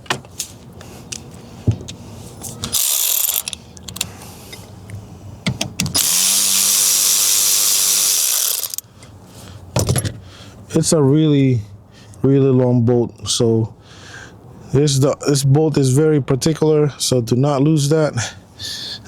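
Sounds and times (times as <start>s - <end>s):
cordless driver spinning: 2.6s - 4.0s, 5.9s - 8.8s
small clicks of bit and tool: 2.6s - 4.1s, 7.8s - 8.8s.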